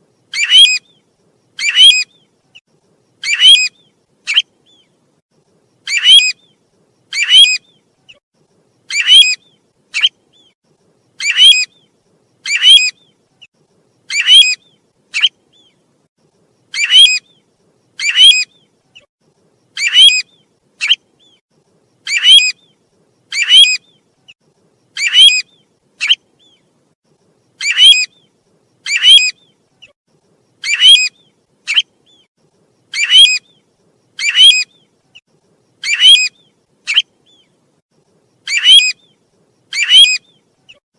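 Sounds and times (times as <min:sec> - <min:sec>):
loud whistled bird calls: 0:00.3 - 0:02.3, 0:03.2 - 0:04.9, 0:05.8 - 0:08.2, 0:08.9 - 0:10.6, 0:11.2 - 0:13.2, 0:14.1 - 0:15.8, 0:16.7 - 0:19.1, 0:19.7 - 0:21.4, 0:22.0 - 0:24.1, 0:24.9 - 0:26.7, 0:27.6 - 0:30.0, 0:30.6 - 0:32.3, 0:32.9 - 0:34.9, 0:35.8 - 0:37.6, 0:38.4 - 0:40.8.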